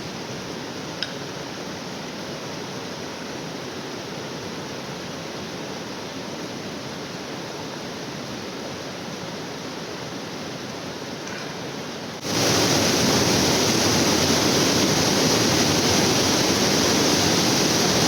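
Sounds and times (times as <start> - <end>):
waterfall rushing: 12.2 - 18.0.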